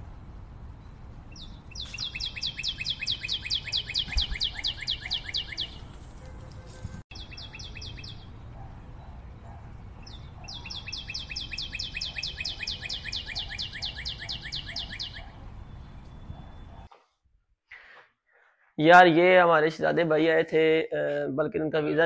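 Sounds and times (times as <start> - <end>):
songbird trilling: 1.3 - 5.9, 7.1 - 8.3, 10.0 - 16.8.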